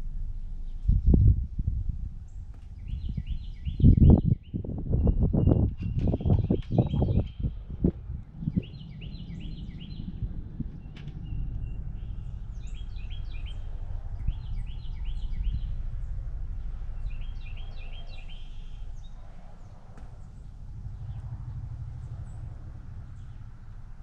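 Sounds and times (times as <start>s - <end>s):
low outdoor rumble: 0.0s - 24.0s
songbirds chirping: 2.3s - 24.0s.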